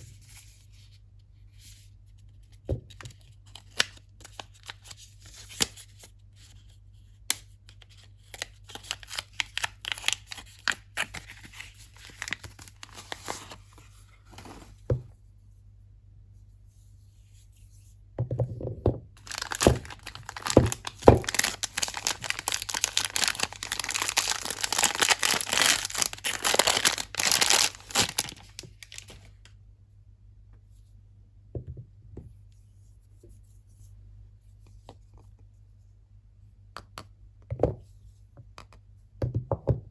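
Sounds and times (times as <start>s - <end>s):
wrapping crinkling and tearing: 7.9s - 14.7s, 19.2s - 29.4s.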